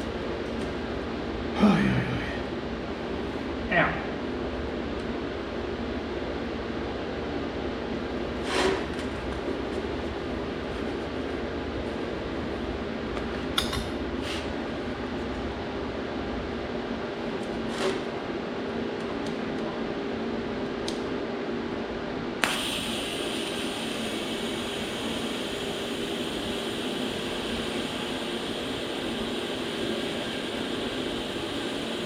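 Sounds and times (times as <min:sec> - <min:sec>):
workshop machine hum: 0:00.0 - 0:32.0
loud steady hiss: 0:22.4 - 0:32.0.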